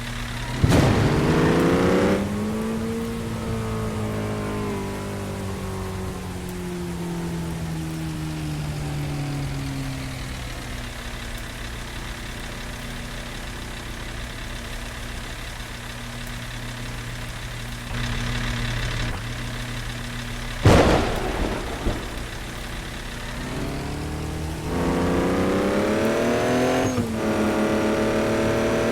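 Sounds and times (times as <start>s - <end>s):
truck engine idling: 0.0s - 28.9s
loud thump: 0.5s - 3.0s, 20.6s - 25.3s.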